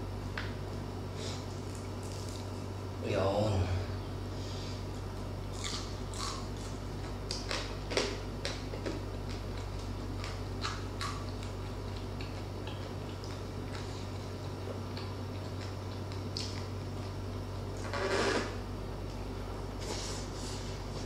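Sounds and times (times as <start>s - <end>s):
chewing crispy pork crackling: 1.2s - 2.8s, 4.8s - 18.4s.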